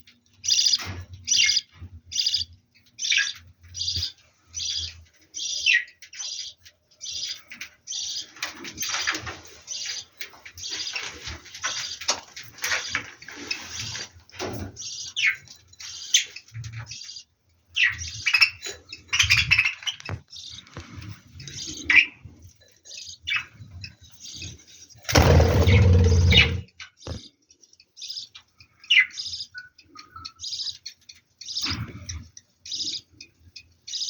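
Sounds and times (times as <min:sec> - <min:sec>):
budgerigars chirping: 0:14.8 - 0:20.7, 0:25.1 - 0:27.2.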